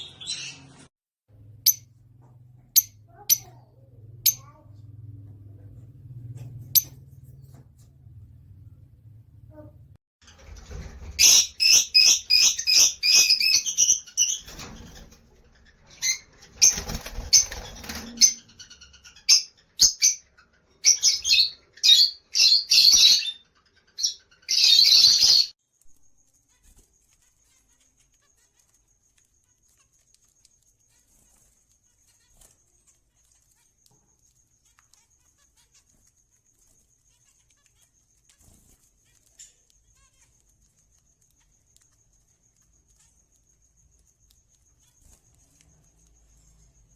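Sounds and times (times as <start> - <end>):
wings flapping: 10.3 - 11.2, 16.4 - 18.3
parakeets calling: 11.1 - 25.6.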